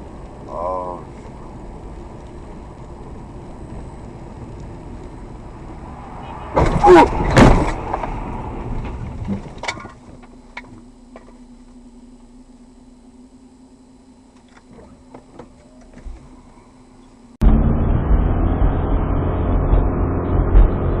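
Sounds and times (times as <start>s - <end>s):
low steady hum: 0.0s - 20.5s
car road noise: 0.0s - 21.0s
car collision bangs: 6.2s - 9.9s.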